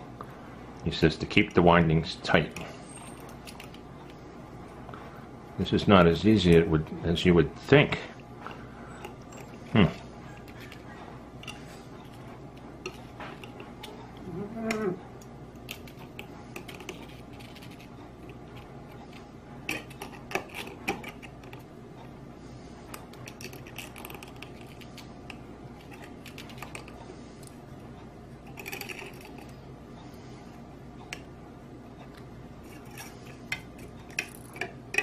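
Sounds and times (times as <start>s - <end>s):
person humming: 14.2s - 15.1s.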